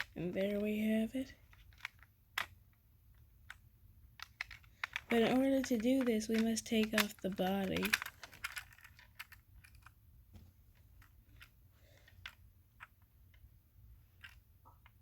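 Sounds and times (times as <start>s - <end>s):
toy car parts clicking: 0.0s - 3.6s, 4.2s - 10.0s.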